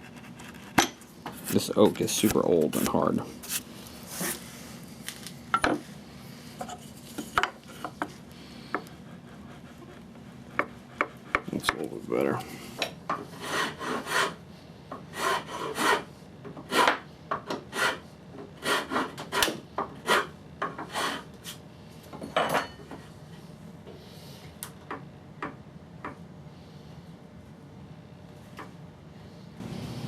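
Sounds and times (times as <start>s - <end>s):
rasp scraping wood: 13.3s - 14.4s, 15.1s - 17.0s, 17.7s - 18.0s, 18.6s - 21.3s.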